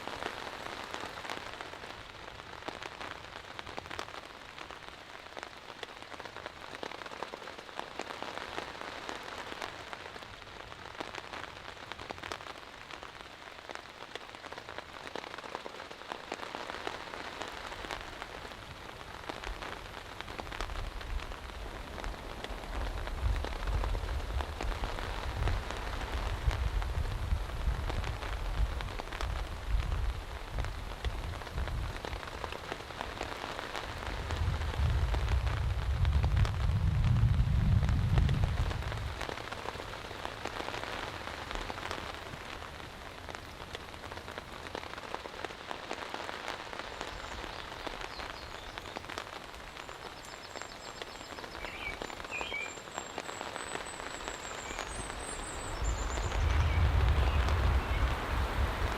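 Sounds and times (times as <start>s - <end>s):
heavy rain hissing: 0.0s - 58.9s
deep low rumble: 34.4s - 39.2s.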